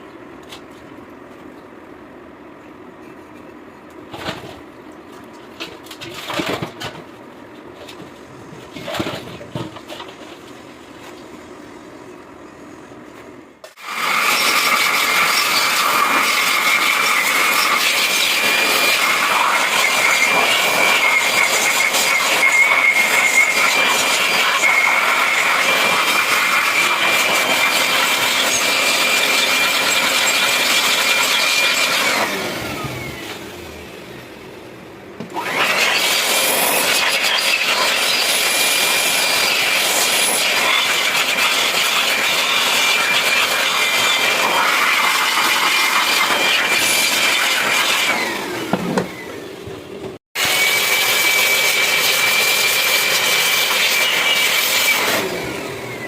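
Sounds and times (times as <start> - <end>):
electric grinder whining: 13.8 - 34.5, 35.3 - 56.0.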